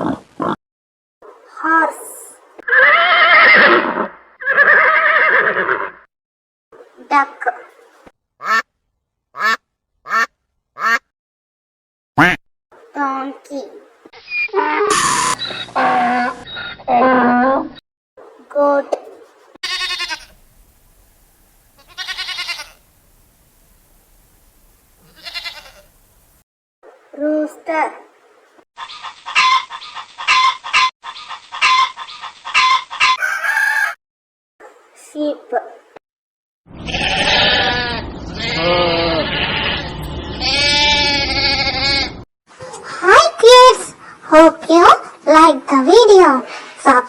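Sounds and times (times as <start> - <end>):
goat bleating: 19.6 - 20.4, 21.8 - 22.8, 25.0 - 26.0, 36.8 - 42.2.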